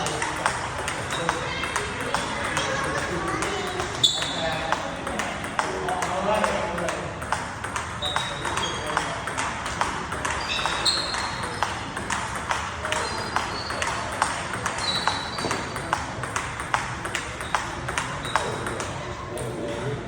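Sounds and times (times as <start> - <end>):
table tennis ball clicks: 0.0 - 19.8
murmur of voices: 0.0 - 20.0
short high squeaks: 8.0 - 8.8, 10.4 - 11.6, 14.8 - 15.6.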